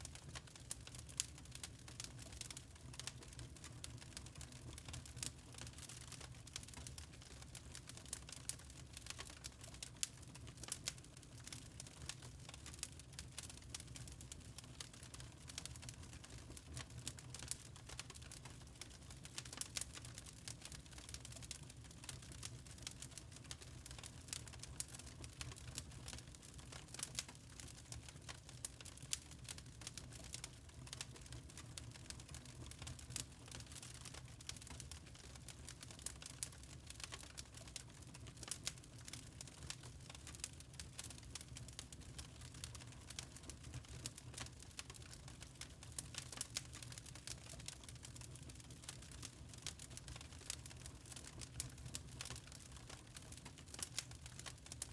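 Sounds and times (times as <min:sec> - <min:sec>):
charcoal crackling and popping: 0:00.0 - 0:54.9.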